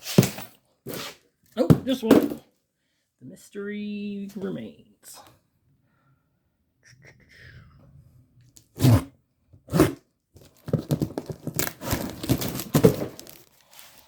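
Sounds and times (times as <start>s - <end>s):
hands rummaging through parts: 10.4s - 14.0s
loud rustles or knocks: 10.6s - 13.4s.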